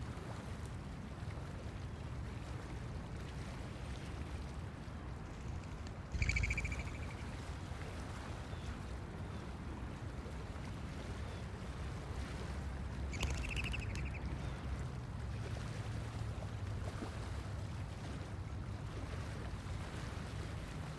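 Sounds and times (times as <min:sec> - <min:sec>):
blue jay harsh calls: 0:06.2 - 0:07.3, 0:13.1 - 0:14.4.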